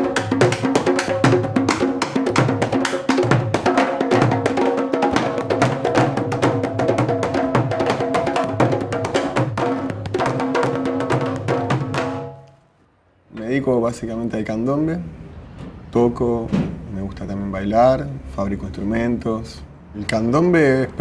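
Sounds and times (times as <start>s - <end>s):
drums playing together: 0.0s - 12.4s.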